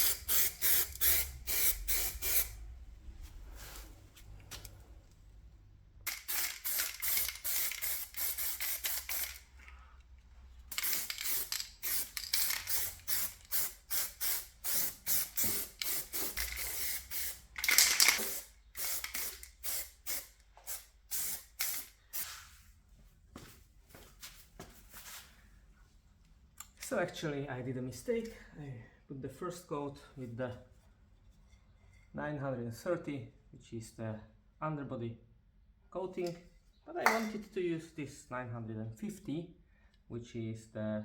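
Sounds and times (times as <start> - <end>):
aerosol can spraying: 0.0 - 2.6, 6.1 - 9.5, 10.7 - 17.4, 18.2 - 22.4.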